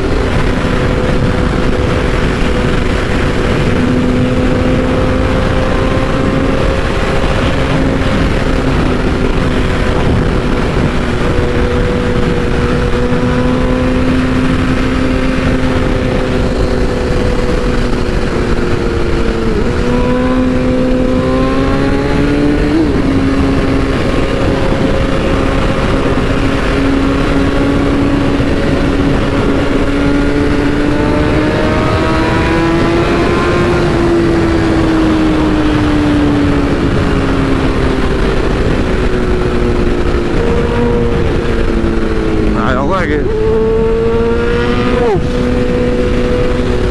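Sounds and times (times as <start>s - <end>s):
motorcycle engine cruising: 0.0s - 46.9s
wind noise rushing: 0.0s - 46.9s.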